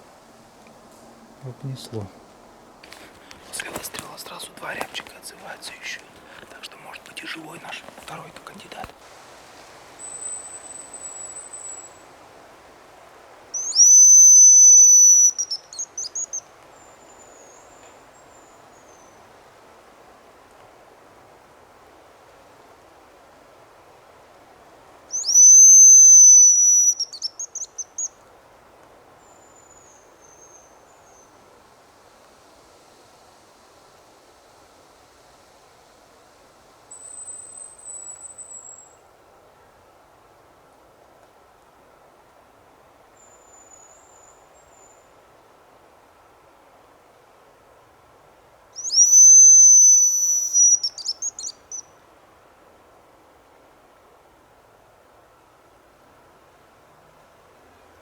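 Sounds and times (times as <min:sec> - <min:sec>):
decoy whistle blown: 0:13.6 - 0:15.4, 0:25.2 - 0:27.0, 0:48.8 - 0:51.1.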